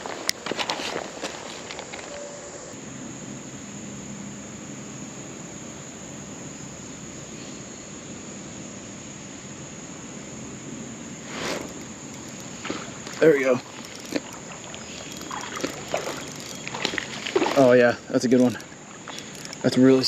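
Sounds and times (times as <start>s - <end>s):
background hiss: 0.0s - 20.0s
insects trilling: 0.0s - 20.0s.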